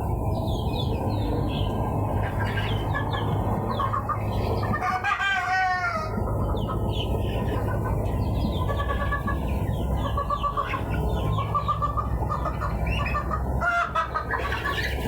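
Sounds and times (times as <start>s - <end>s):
chickens clucking: 0.4s - 15.0s.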